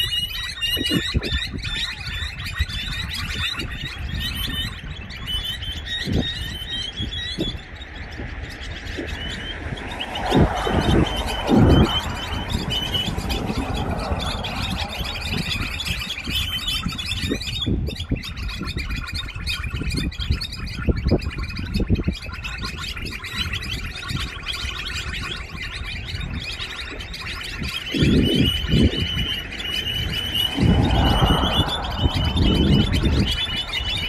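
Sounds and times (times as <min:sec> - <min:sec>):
small birds chirping: 0:00.0 - 0:34.0
low burst: 0:30.0 - 0:34.0.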